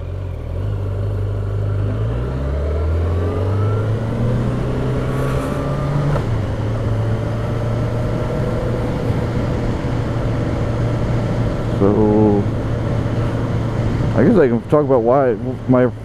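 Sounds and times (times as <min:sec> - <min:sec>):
motorcycle engine accelerating: 0:00.0 - 0:14.5.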